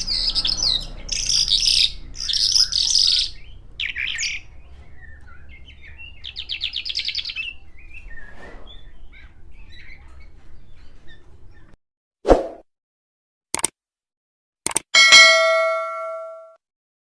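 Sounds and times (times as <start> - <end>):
bird chirping and trilling: 0.0 - 11.8.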